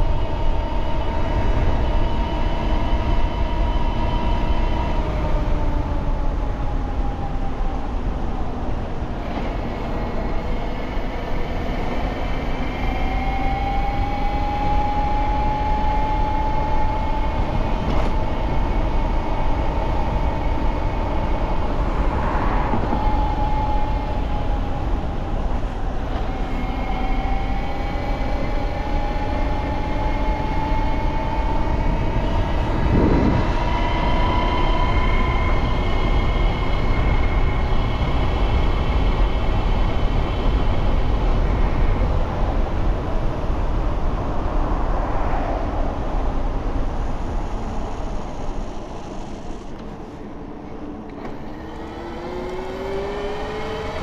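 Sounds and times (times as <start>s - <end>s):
wind rumble on microphone: 0.0s - 54.0s
electric bike motor whining: 51.1s - 54.0s.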